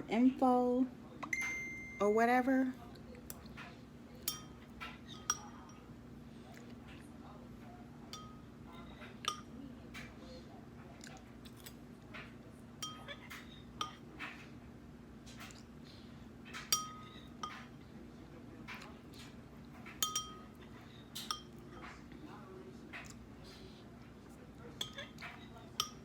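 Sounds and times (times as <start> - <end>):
low steady hum: 0.0 - 26.0
cutlery clinking against a dish: 3.3 - 5.9, 8.0 - 10.2, 11.4 - 14.6, 16.4 - 17.9, 18.6 - 26.0.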